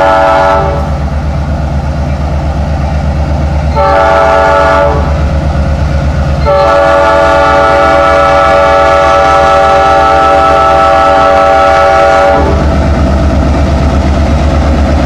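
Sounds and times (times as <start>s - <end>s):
locomotive horn blasts: 0.0s - 1.0s, 3.7s - 5.2s, 6.4s - 12.7s
diesel engine throbbing: 0.0s - 15.0s.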